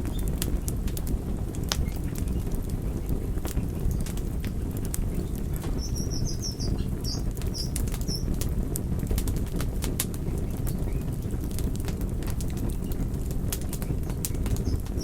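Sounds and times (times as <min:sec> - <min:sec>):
wood fire crackling: 0:00.0 - 0:15.0
high chirps: 0:05.8 - 0:08.2.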